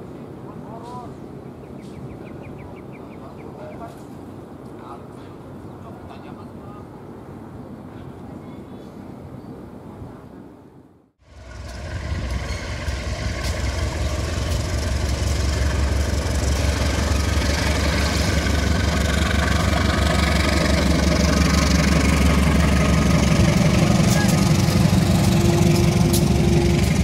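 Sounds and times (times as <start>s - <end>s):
locomotive engine drone: 11.2s - 27.0s.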